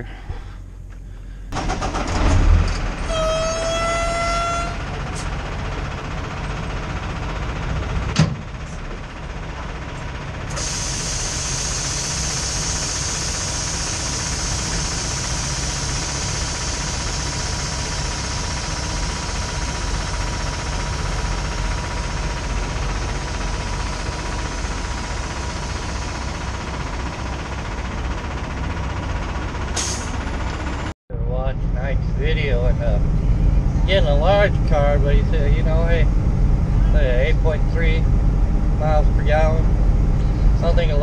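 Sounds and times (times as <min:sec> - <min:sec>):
truck horn blast: 0:03.0 - 0:05.0.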